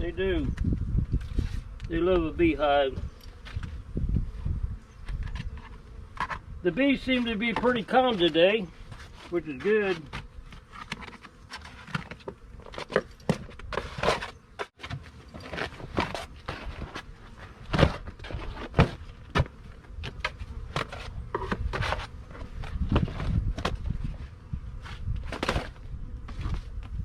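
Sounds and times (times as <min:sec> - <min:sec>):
honeybees buzzing: 0:00.0 - 0:27.0
knocks and rustles: 0:08.9 - 0:24.2.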